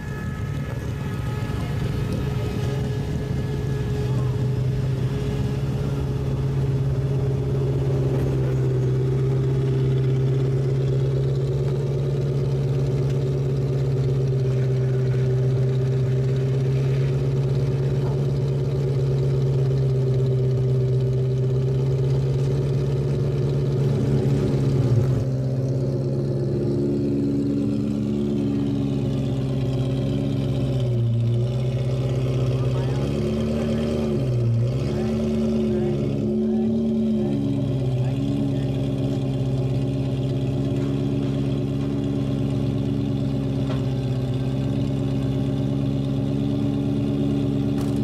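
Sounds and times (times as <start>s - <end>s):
car engine idling: 0.0s - 48.0s.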